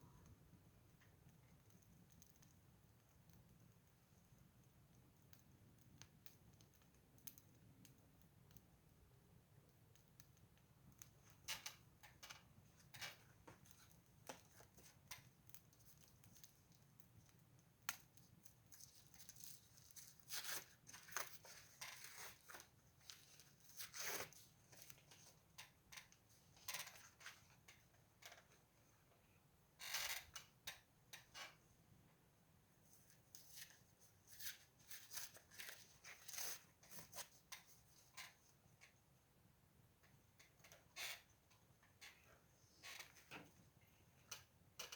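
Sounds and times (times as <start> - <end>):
wood fire crackling and popping: 0.0 - 28.5.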